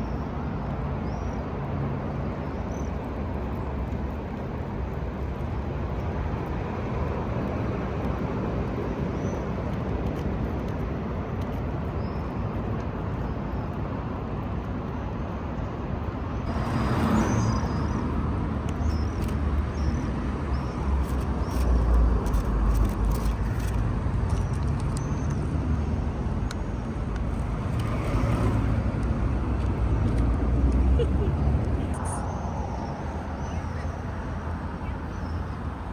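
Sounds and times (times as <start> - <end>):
road traffic noise: 0.0 - 35.9
vehicle passing: 16.5 - 18.7, 20.3 - 35.9
faint bird chirps: 31.9 - 35.6.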